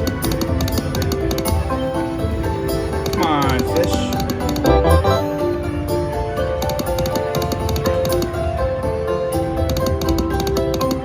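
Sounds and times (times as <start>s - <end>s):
slot machine electronic jingle: 4.7s - 5.3s.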